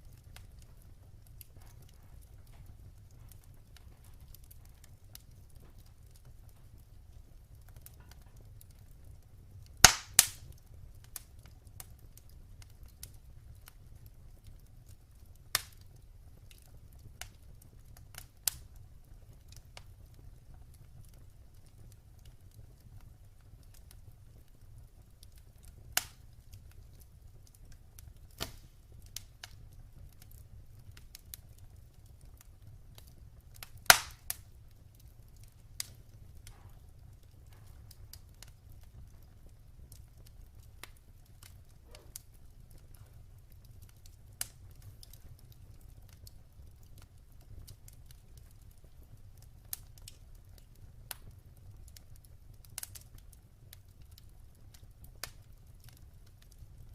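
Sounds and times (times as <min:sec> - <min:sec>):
wood fire crackling: 0:00.0 - 0:56.9
fire popping sharply: 0:09.8 - 0:10.5, 0:28.2 - 0:29.6, 0:33.6 - 0:34.6, 0:35.6 - 0:38.6, 0:41.4 - 0:43.2.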